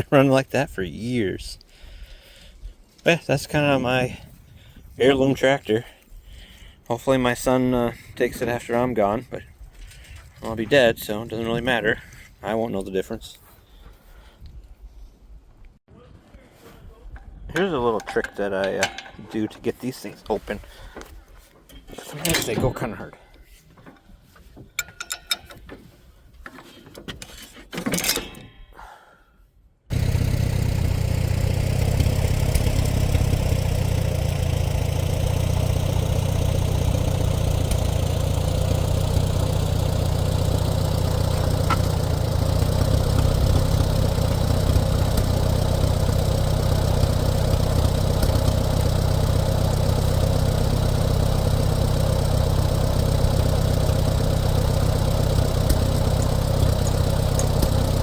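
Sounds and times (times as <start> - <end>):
tractor engine idling: 29.9 - 58.0.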